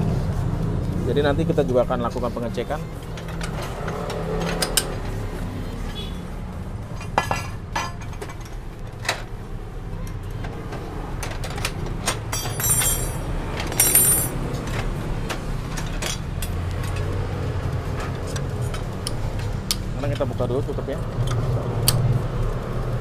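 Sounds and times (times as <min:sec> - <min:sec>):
hand tools clicking on metal: 0:03.1 - 0:05.1
ringing metal clinks: 0:12.3 - 0:14.4.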